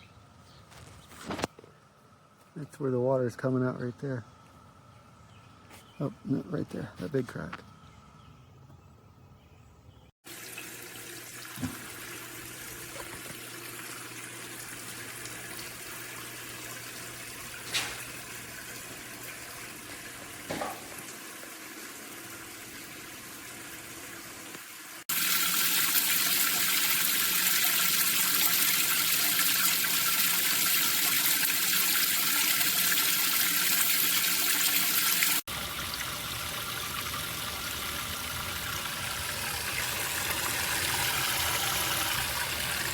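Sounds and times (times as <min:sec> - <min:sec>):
water splashing in a fountain: 0:25.0 - 0:42.9.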